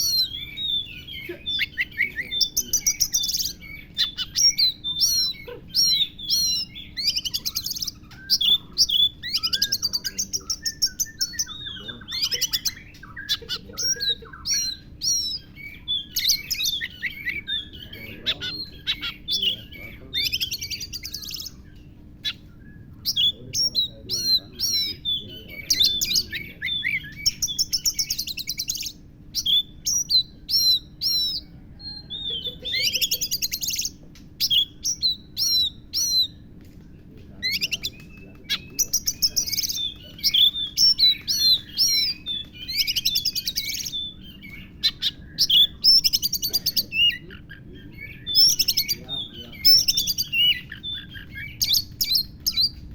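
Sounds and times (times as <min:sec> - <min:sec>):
bird singing trills and whistles: 0:00.0 - 0:52.9.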